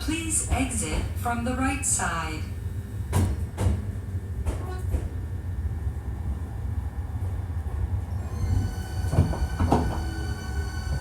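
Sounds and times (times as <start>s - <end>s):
train rumbling: 0.0s - 11.0s
wheels clunking over rail joints: 8.5s - 11.0s.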